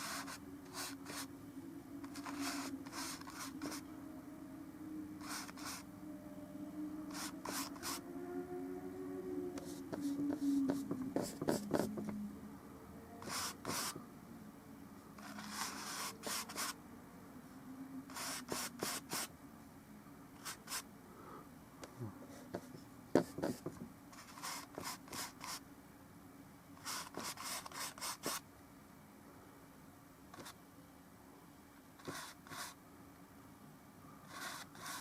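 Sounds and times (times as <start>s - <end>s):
paint brush strokes scratching: 0.0s - 1.3s, 2.0s - 3.9s, 5.2s - 5.9s, 7.1s - 8.0s, 9.6s - 12.0s, 13.2s - 14.0s, 15.2s - 16.8s, 18.1s - 19.3s, 20.4s - 20.9s, 24.2s - 25.6s, 26.8s - 28.4s, 32.0s - 32.8s, 34.3s - 35.0s.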